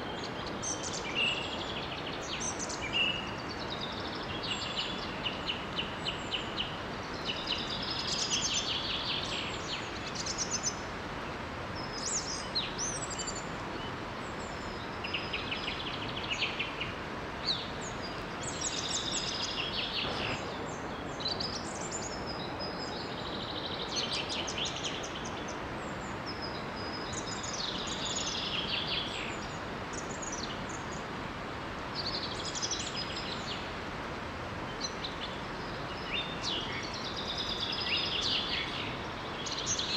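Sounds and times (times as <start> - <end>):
small waterfall rushing: 0.0 - 39.9
songbirds trilling: 11.8 - 31.1.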